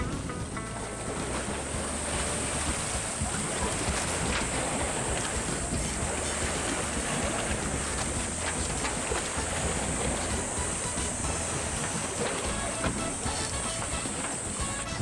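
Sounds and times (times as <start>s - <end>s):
low drone: 0.0s - 15.0s
water noise: 0.0s - 15.0s
wind on microphone: 0.0s - 15.0s.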